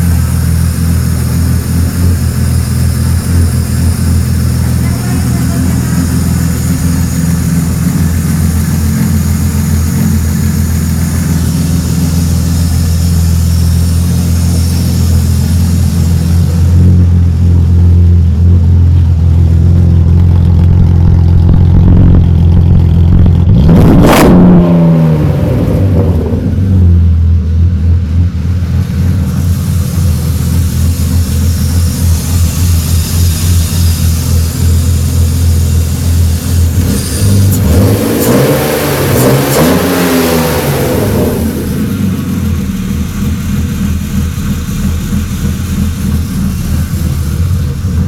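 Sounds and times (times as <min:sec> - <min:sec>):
car engine running: 0:00.0 - 0:48.0
engine revving blip: 0:23.5 - 0:26.3.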